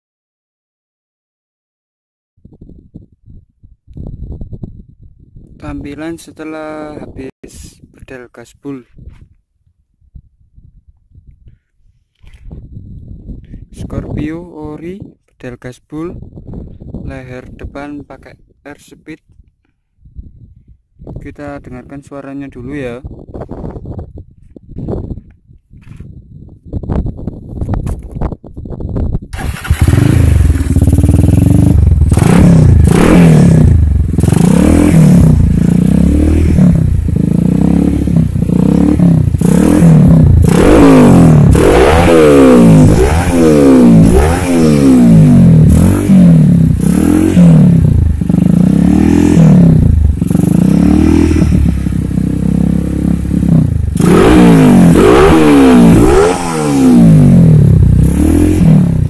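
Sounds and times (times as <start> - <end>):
motorcycle engine revving: 29.3 - 59.0.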